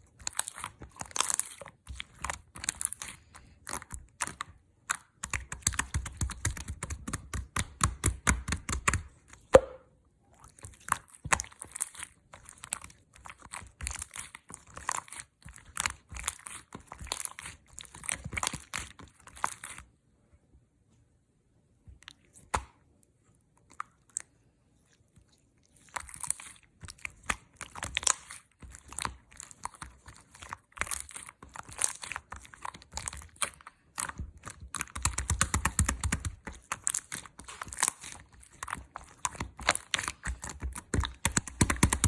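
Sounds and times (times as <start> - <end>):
slime crackling and popping: 0.0 - 9.8, 25.9 - 42.0.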